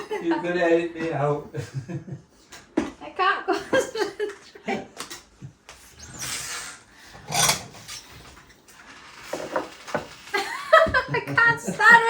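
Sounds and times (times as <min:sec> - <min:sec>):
rubbing and scraping handling noises: 0:07.2 - 0:10.4.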